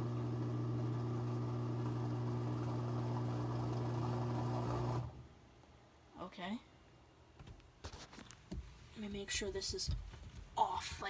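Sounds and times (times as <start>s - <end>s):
washing machine pump humming: 0.0s - 5.2s.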